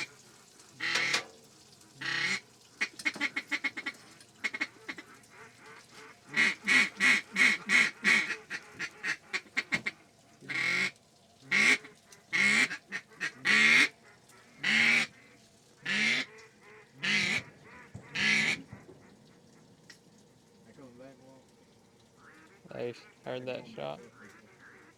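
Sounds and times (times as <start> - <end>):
duck quacking: 0.8 - 1.2, 2.0 - 10.9, 11.5 - 18.9, 22.2 - 24.9.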